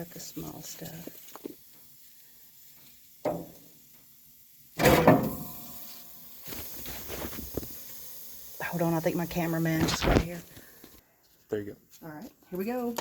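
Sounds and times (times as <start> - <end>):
knock on metal smoker: 3.3 - 3.6, 4.8 - 5.5.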